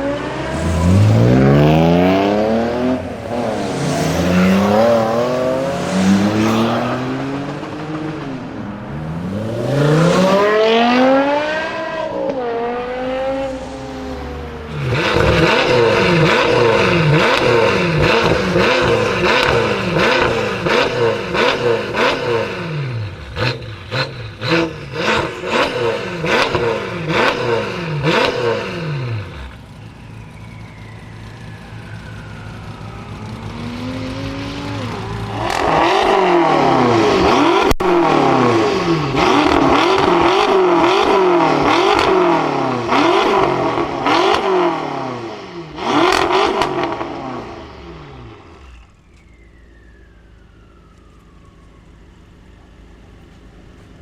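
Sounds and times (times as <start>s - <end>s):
car engine revving: 0.0s - 50.0s
exhaust crackles and pops: 29.4s - 44.5s, 48.5s - 54.0s.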